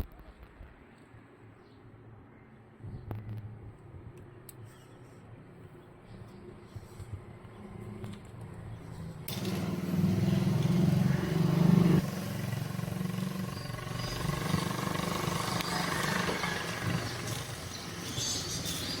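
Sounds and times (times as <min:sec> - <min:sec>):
vehicle engine running: 0:09.3 - 0:19.0.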